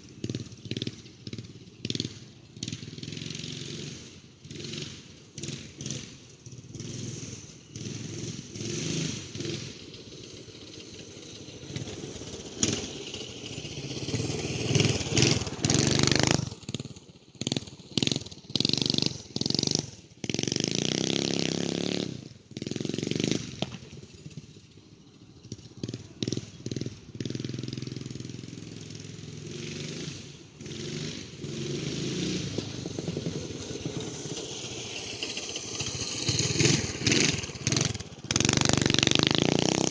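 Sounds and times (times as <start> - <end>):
minibike engine running: 0.0 - 39.9.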